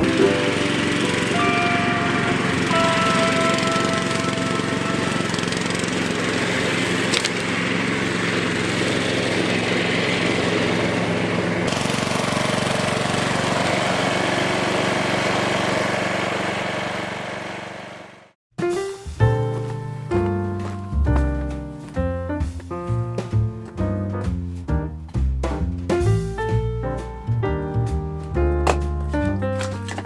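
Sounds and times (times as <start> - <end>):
small motor running: 0.0 - 18.2.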